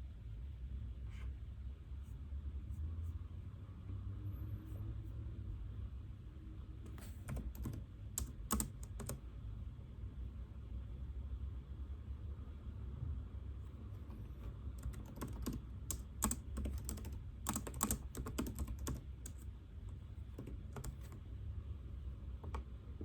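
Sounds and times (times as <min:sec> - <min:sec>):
steady low hum: 0:00.0 - 0:23.0
computer keyboard typing: 0:06.8 - 0:09.2, 0:13.8 - 0:21.2.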